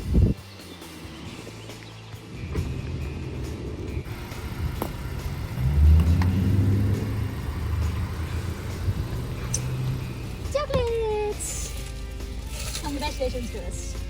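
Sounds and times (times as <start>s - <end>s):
road rumble: 0.0s - 14.0s
car engine: 0.8s - 10.7s.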